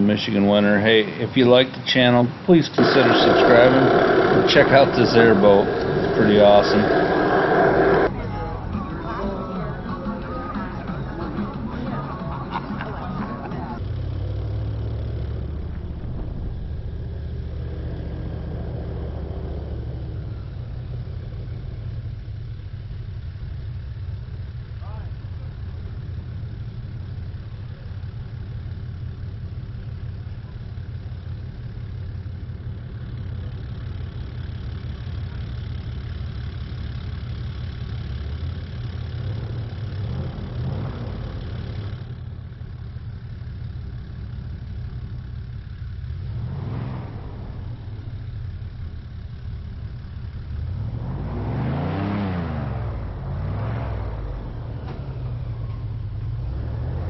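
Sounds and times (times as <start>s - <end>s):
airboat engine and propeller: 0.0s - 8.1s.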